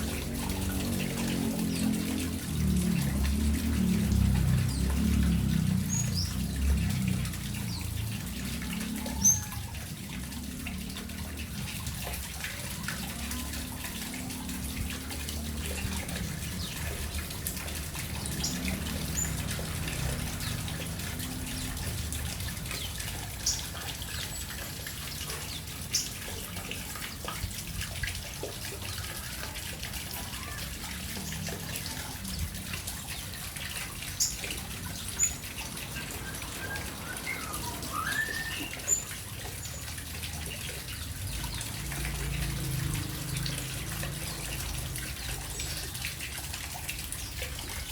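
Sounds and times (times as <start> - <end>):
water trickling and splashing: 0.0 - 47.9
high bird chirps: 36.6 - 39.1.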